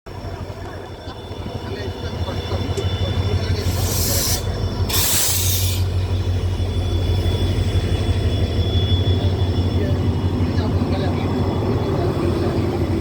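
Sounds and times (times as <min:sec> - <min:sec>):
train rumbling: 0:00.1 - 0:13.0
loud hiss burst: 0:03.7 - 0:05.9.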